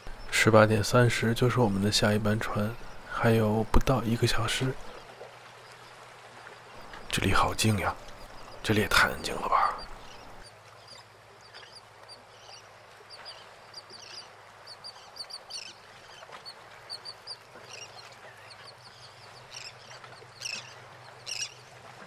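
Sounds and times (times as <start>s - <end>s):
high bird chirps: 6.8s - 10.4s.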